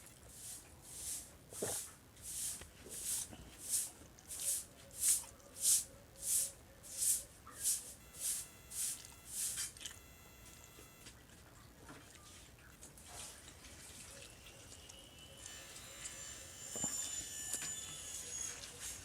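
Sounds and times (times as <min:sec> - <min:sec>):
faint brief ringing tone: 0:08.0 - 0:11.1, 0:15.5 - 0:18.8
chewing and mouth smacking: 0:09.0 - 0:15.6.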